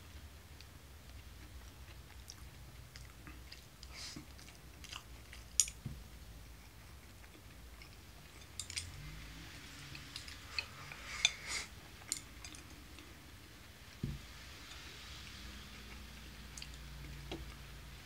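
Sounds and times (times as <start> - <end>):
person chewing food: 0.5 - 13.2
chopsticks clicking on dishes: 5.4 - 5.8, 7.8 - 9.0, 12.0 - 13.1.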